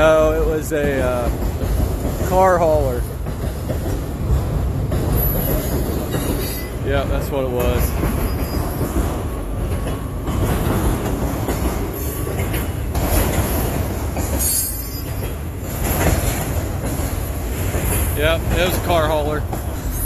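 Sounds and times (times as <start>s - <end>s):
freight train rumbling past: 0.0s - 20.0s
train wheels squealing: 5.2s - 6.8s, 7.8s - 9.0s, 14.2s - 16.0s.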